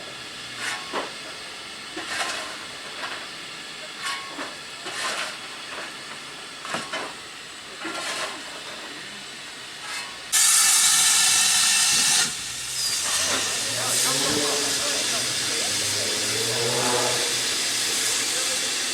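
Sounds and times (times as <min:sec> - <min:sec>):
loud steady steam blast: 0:09.1 - 0:18.9
soft short steam hisses: 0:09.9 - 0:18.9.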